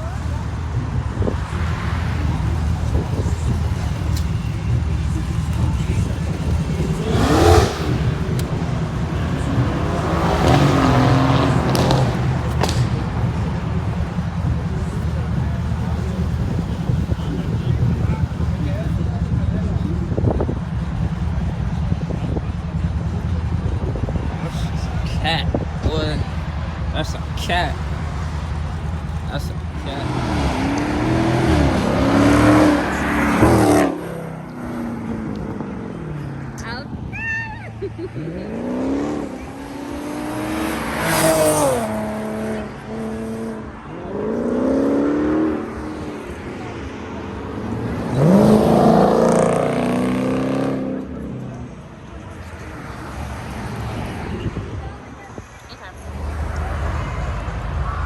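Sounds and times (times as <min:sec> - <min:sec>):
car engine revving: 0:00.0 - 0:58.0
sharp cracks: 0:11.7 - 0:13.1.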